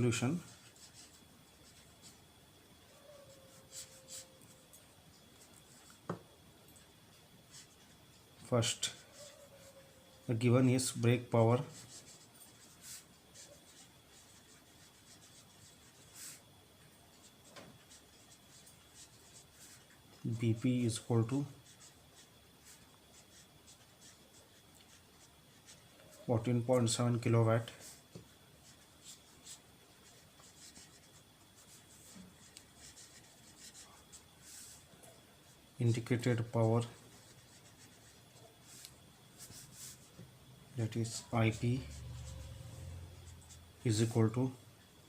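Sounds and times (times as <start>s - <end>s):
pen scratching while writing: 11.7s - 16.4s.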